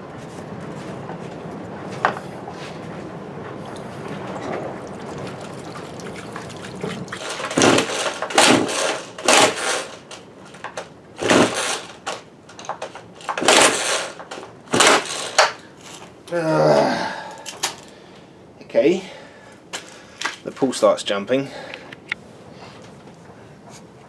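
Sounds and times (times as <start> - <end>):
chainsaw pull starter rasping: 7.2 - 16.2.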